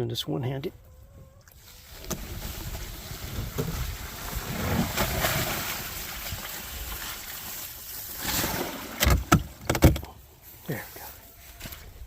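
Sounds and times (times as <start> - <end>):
water pouring and sloshing: 1.4 - 9.6.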